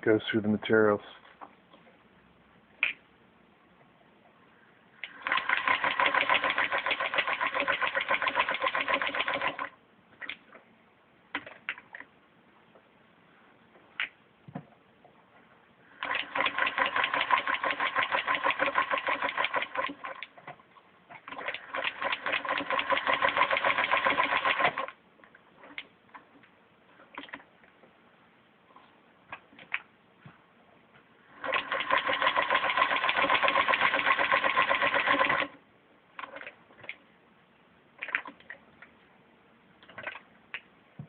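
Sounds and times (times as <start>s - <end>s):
sewing machine stitching: 5.0s - 9.7s, 16.0s - 20.5s, 21.2s - 24.9s, 31.3s - 35.6s.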